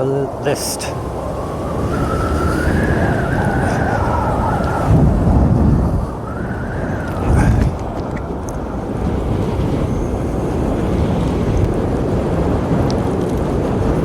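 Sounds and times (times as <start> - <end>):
wind gusting over microphone: 0.0 - 14.0
whistling howl: 1.0 - 7.7.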